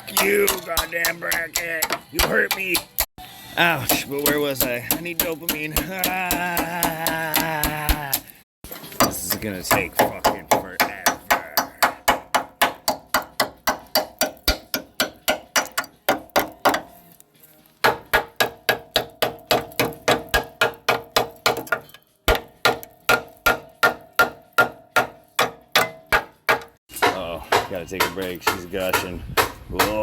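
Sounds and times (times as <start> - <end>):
hammer blows on rusted metal: 8.9 - 16.9, 17.8 - 30.0.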